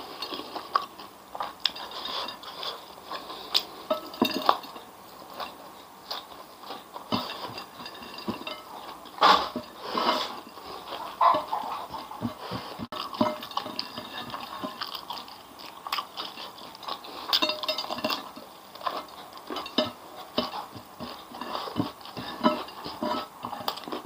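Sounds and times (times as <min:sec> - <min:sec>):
chewing and crunching: 0:00.0 - 0:24.0.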